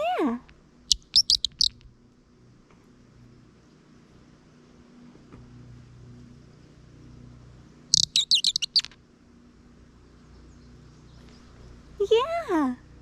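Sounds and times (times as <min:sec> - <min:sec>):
bird caller squeaky chirps: 0:00.9 - 0:01.8, 0:07.9 - 0:09.0.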